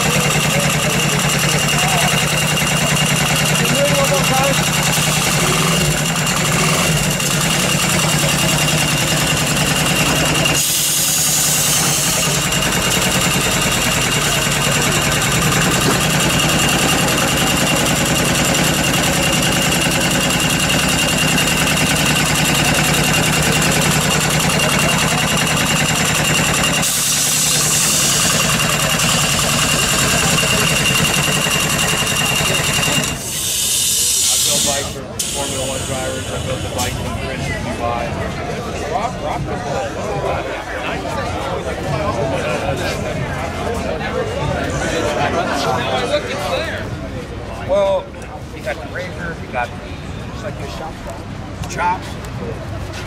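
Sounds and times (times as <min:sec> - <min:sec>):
diesel engine idling: 0:00.0 - 0:48.7
hiss: 0:10.6 - 0:12.4, 0:26.8 - 0:28.5, 0:33.2 - 0:36.8.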